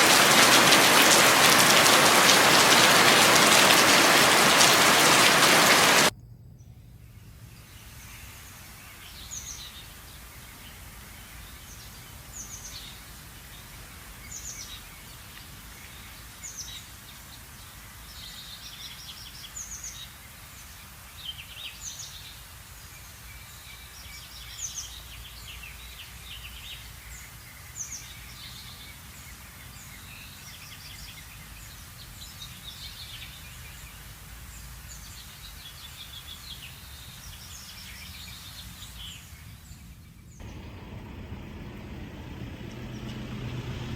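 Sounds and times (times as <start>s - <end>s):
birds calling: 0.0s - 7.0s, 40.4s - 43.9s
low background rumble: 6.1s - 11.0s, 39.6s - 43.9s.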